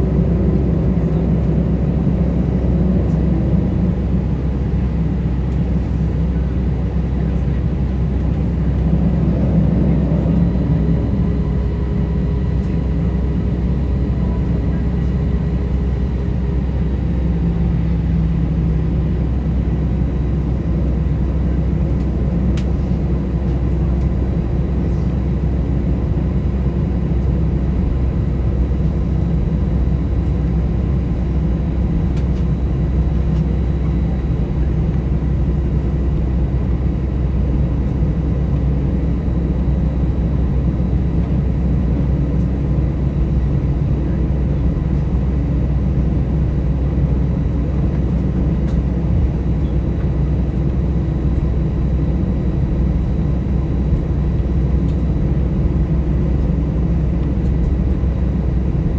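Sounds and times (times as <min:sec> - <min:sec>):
airplane cabin engine rumble: 0:00.0 - 0:58.9
faint steady whines: 0:00.0 - 0:58.9.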